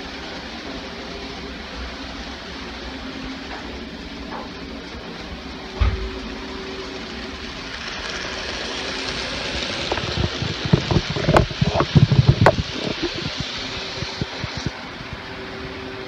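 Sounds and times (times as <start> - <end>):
faint hum: 0.0 - 16.0
model train whirring on track: 0.0 - 16.0
wheels clicking over rail joints: 6.9 - 14.7.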